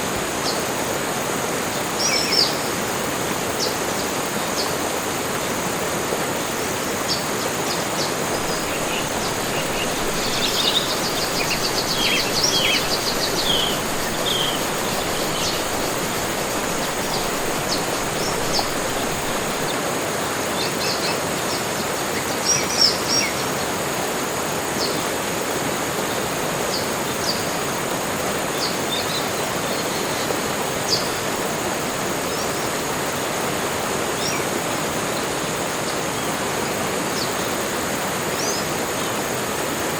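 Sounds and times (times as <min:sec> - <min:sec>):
steady rushing hiss: 0:00.0 - 0:39.9
forest birds singing and chirping: 0:01.8 - 0:02.7, 0:06.5 - 0:19.8, 0:20.6 - 0:23.6, 0:28.5 - 0:32.7, 0:34.1 - 0:36.3.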